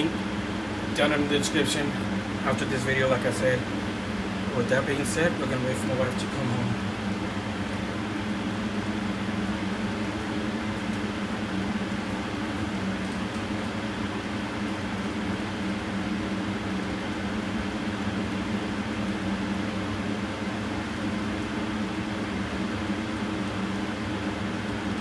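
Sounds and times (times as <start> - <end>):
fan humming: 0.0 - 25.0.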